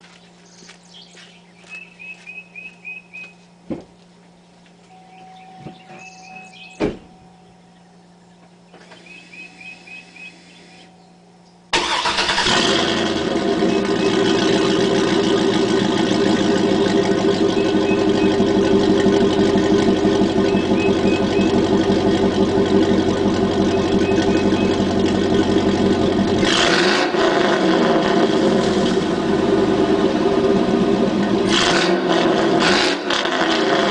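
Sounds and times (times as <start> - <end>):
truck engine starting and idling: 11.7 - 33.9.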